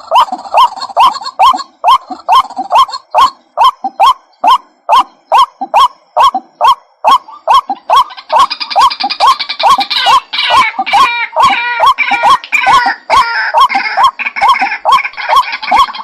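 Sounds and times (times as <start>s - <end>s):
waterhen calling: 0.0s - 16.0s.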